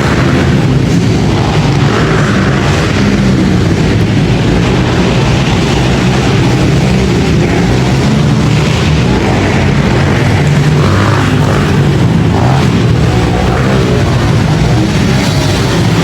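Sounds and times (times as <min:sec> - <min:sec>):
pit bike engines running: 0:00.0 - 0:16.0.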